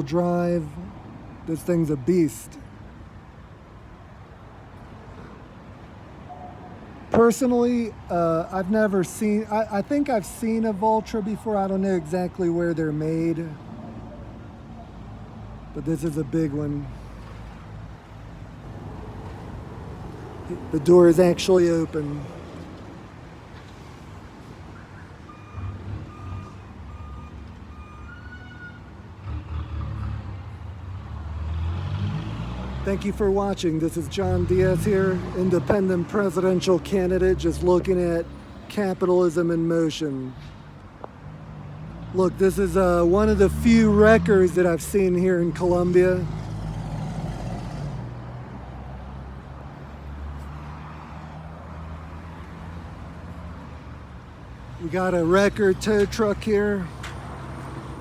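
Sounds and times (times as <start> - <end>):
road traffic noise: 0.0 - 58.0
vehicle engine humming: 15.8 - 23.8, 41.8 - 58.0
vehicle back-up alarm beeping: 24.7 - 29.0.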